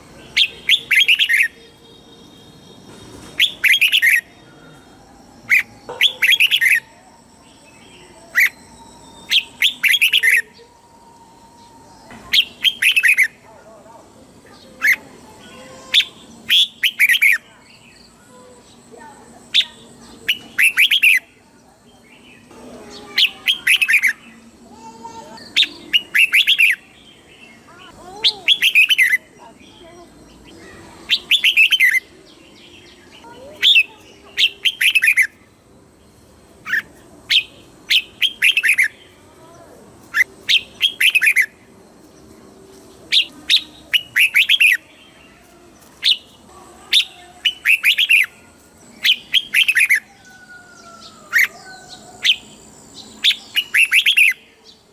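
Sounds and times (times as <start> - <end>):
faint bird calls: 42.6 - 54.9.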